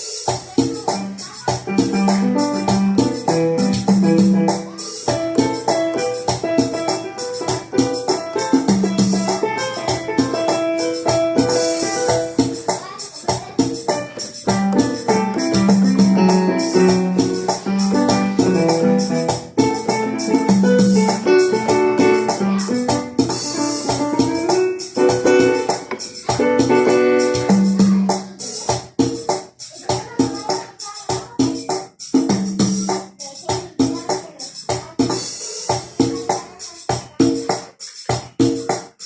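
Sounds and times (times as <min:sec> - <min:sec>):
synthesizer keyboard chords: 0:00.0 - 0:29.0
shaker and tambourine percussion: 0:00.0 - 0:39.0
bass notes: 0:01.8 - 0:04.7, 0:14.5 - 0:23.3.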